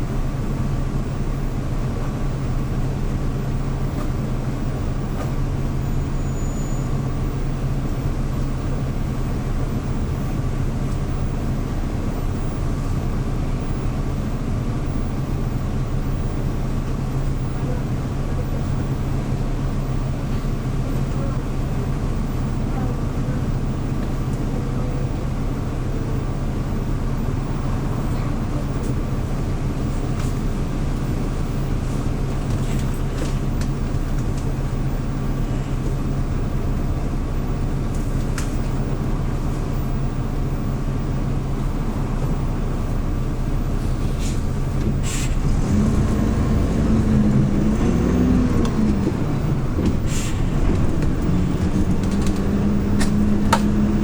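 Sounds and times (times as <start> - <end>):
bus engine drone: 0.0 - 54.0
light rattles and clicks: 44.6 - 54.0.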